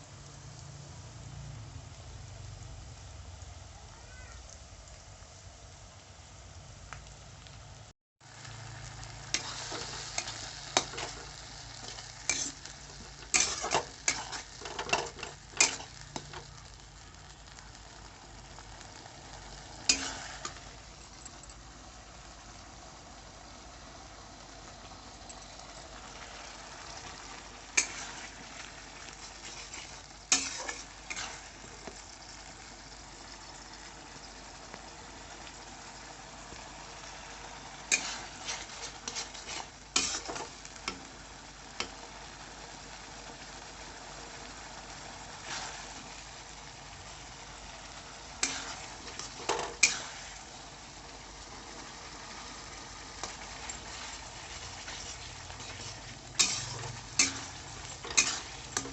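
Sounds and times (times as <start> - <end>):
curry sizzling in a pan: 0.0 - 58.9
metal spoon scraping pan: 9.4 - 16.5, 19.9 - 20.6, 27.8 - 28.3, 29.1 - 31.5, 37.9 - 40.5, 48.4 - 50.3, 53.2 - 58.9.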